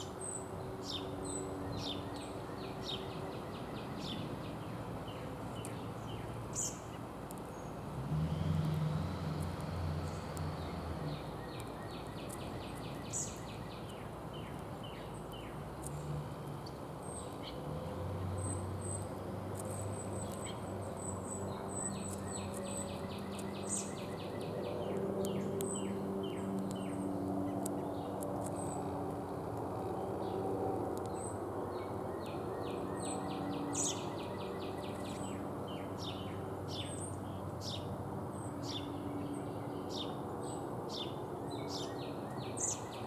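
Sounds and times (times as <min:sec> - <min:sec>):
songbirds chirping: 0:00.0 - 0:43.0.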